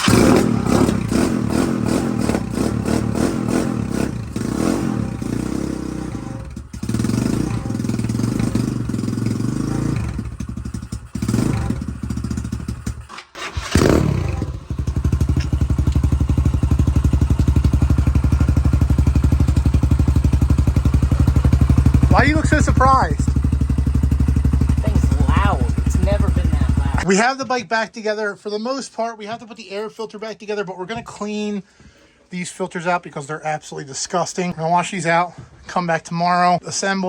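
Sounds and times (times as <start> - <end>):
dirt bike engine idling: 0.0 - 27.1.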